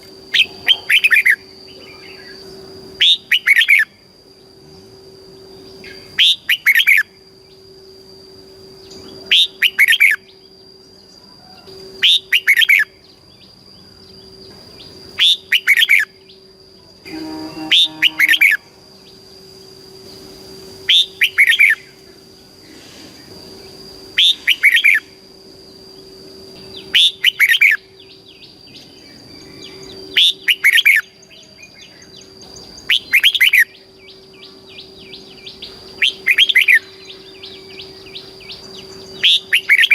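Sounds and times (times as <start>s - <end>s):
bulbul singing warbling phrases: 0.3s - 3.9s.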